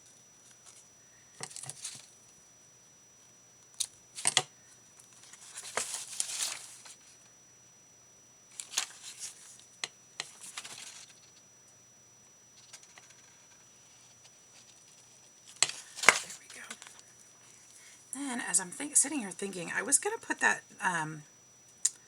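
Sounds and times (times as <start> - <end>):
paper rustling: 5.2 - 7.2, 10.3 - 11.3, 12.6 - 17.0.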